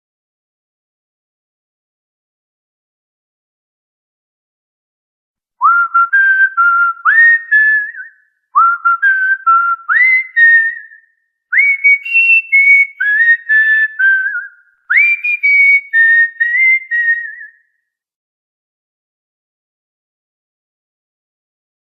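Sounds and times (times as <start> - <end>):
cockatiel whistling a tune: 5.6 - 17.6.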